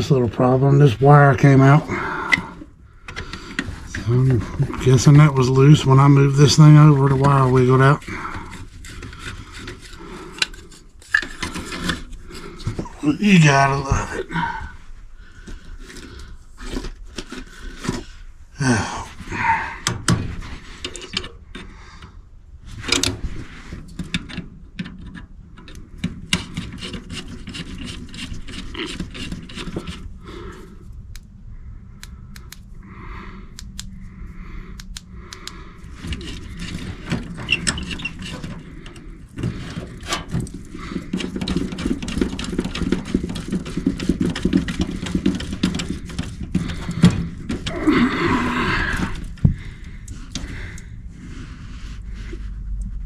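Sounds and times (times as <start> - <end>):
tools and wires scraping metal: 1.3 - 14.0, 24.1 - 31.3, 34.8 - 47.7.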